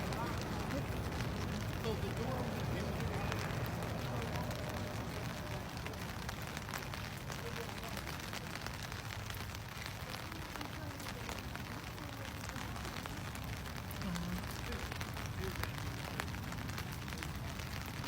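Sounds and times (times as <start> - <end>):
faint distant voices: 0.0 - 18.0
small crackles and clicks: 0.0 - 18.0.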